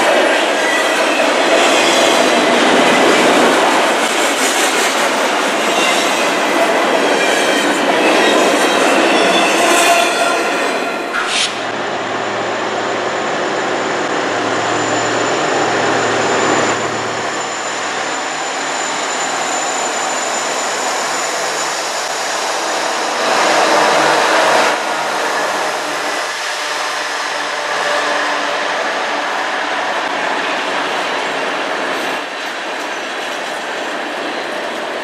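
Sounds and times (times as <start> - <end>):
diesel locomotive: 0.0 - 35.0
freight train wheels rumbling: 0.0 - 35.0
thin high whine: 11.2 - 24.0.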